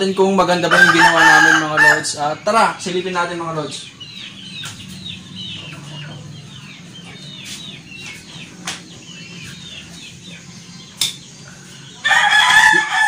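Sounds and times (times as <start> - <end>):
chicks cheeping: 0.0 - 13.0.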